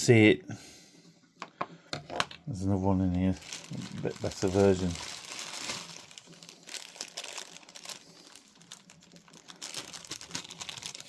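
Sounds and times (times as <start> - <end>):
packaging crinkling and rustling: 2.9 - 11.0.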